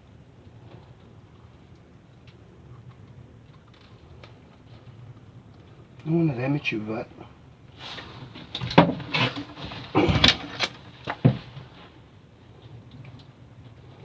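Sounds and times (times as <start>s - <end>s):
rustling: 7.7s - 13.1s
fish thumping in a boat: 8.0s - 12.0s.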